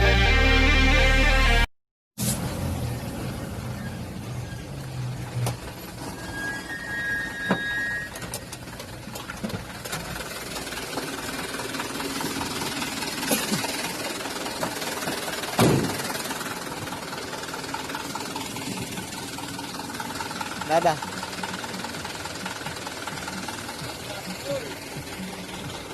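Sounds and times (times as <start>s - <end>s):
road noise: 2.2s - 25.9s
truck engine running: 2.2s - 25.9s
loud thump: 15.6s - 16.0s.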